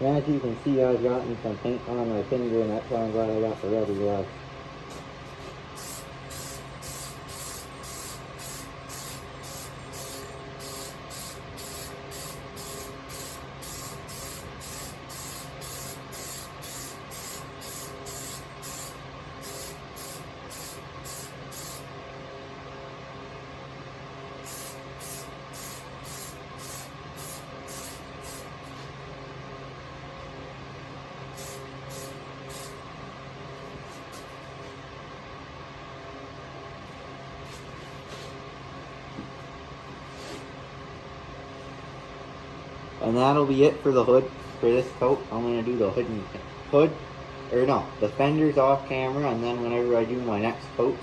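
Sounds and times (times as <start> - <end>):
steady low hum: 0.0 - 51.0
spray-paint can spraying spurts: 5.8 - 21.9, 24.4 - 28.8, 31.4 - 32.8.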